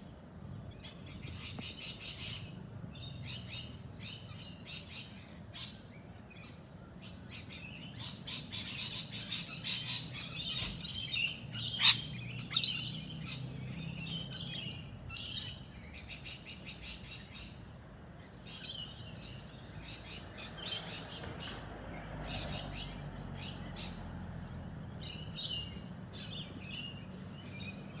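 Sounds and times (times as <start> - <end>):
birds chirping and singing: 0.8 - 28.0.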